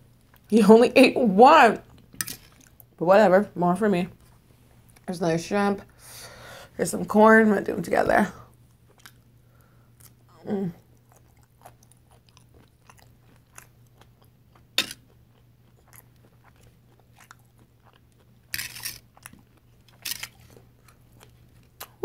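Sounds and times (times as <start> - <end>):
chewing and mouth sounds: 8.7 - 9.3, 9.9 - 22.0
fork scraping foil tray: 18.6 - 19.0.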